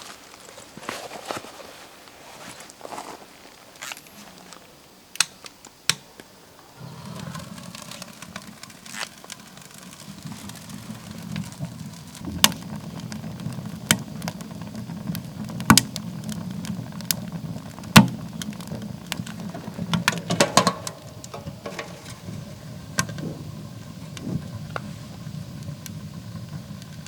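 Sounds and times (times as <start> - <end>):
campfire crackling and popping: 5.1 - 27.0.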